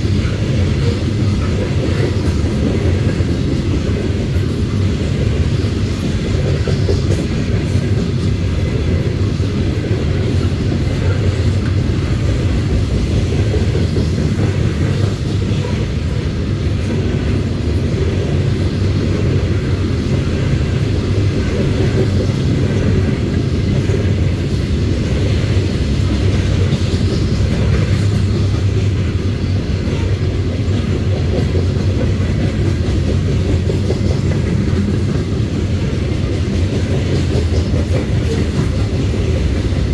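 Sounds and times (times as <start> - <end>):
freight train rolling on rails: 0.0 - 39.9.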